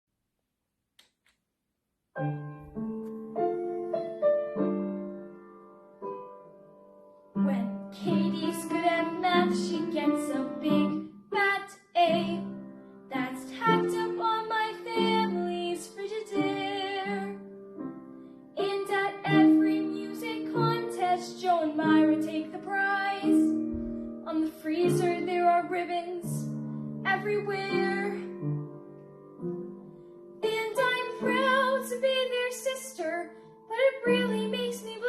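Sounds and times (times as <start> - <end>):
piano accompaniment: 2.2 - 35.0
woman singing: 7.4 - 12.5, 13.1 - 17.4, 18.6 - 23.6, 24.2 - 28.4, 30.4 - 35.0.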